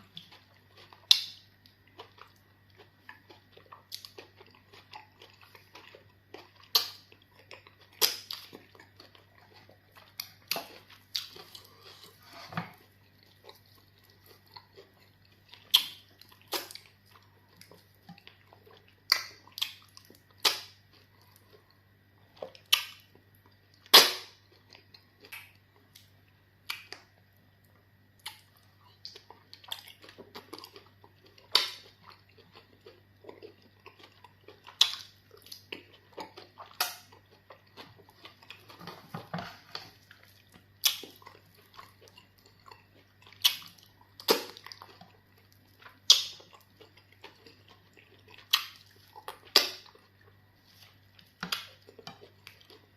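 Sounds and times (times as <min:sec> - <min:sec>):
faint steady hum: 0:00.0 - 0:52.9
mouth smacks and chewing: 0:13.1 - 0:21.8, 0:28.2 - 0:52.9.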